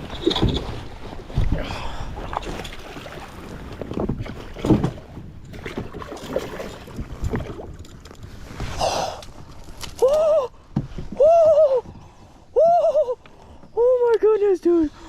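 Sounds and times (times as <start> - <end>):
water splashing: 0.0 - 10.4.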